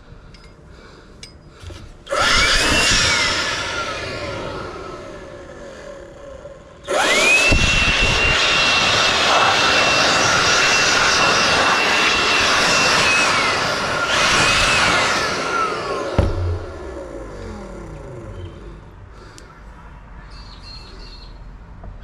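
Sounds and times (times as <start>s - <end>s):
electric chainsaw motor whine: 2.1s - 18.9s.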